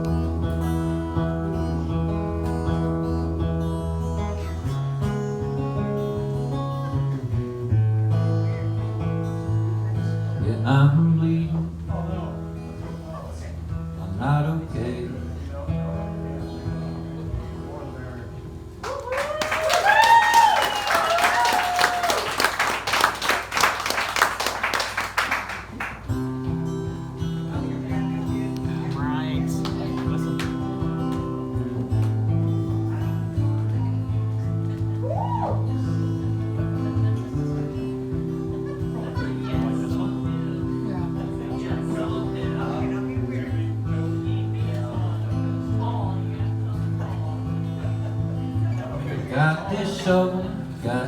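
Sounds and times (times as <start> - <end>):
acoustic guitar strumming chords: 0.0 - 18.8, 25.6 - 51.0
people talking faintly: 0.0 - 51.0
audience applause: 18.8 - 26.1.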